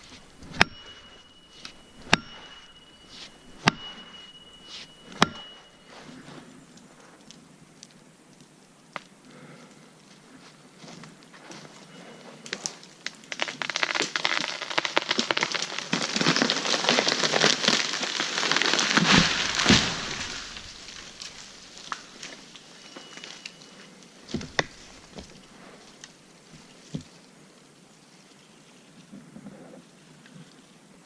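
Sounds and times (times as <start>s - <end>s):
wood crackling and snapping: 0.0s - 5.9s, 6.7s - 27.2s
tree crashing down: 13.3s - 23.6s
heavy thuds: 19.0s - 22.4s.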